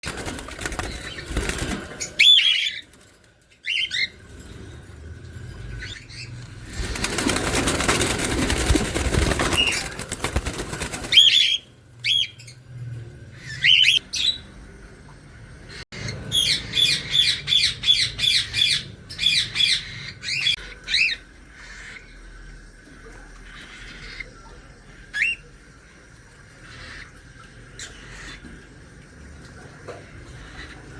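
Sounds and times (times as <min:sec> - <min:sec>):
wings flapping: 0:00.0 - 0:03.9, 0:06.5 - 0:11.6.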